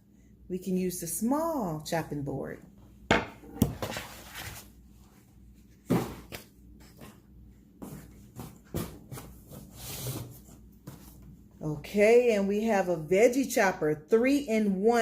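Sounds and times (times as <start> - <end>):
kitchenware knocking: 3.1 - 3.8
scraping and rustling packaging: 3.8 - 4.8.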